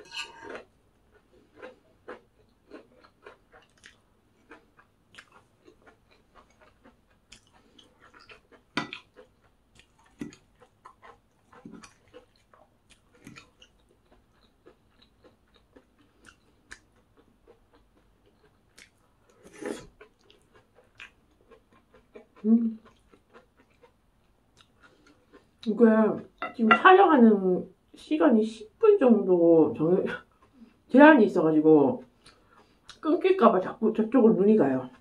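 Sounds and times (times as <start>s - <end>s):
person chewing and crunching food: 0.0s - 25.7s, 30.2s - 30.9s, 32.0s - 33.0s.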